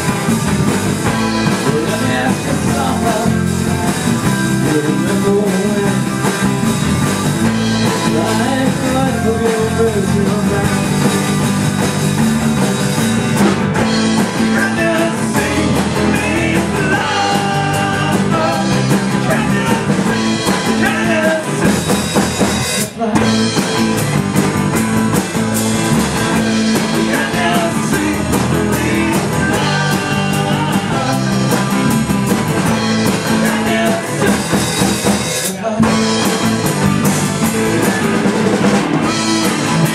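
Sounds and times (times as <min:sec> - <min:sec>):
live rock band playing: 0:00.0 - 0:39.9
person singing: 0:01.4 - 0:03.5, 0:04.5 - 0:06.2, 0:07.9 - 0:10.9, 0:14.3 - 0:21.8, 0:26.1 - 0:32.0, 0:33.1 - 0:34.8.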